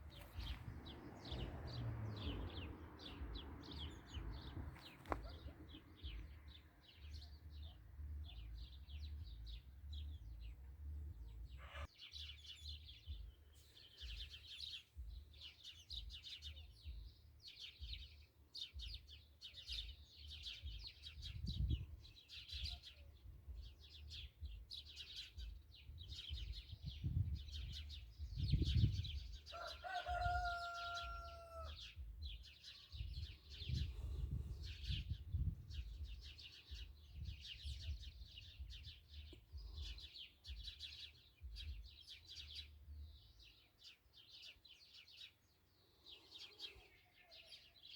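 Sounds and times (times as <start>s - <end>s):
birds chirping and twittering: 0.0s - 47.9s.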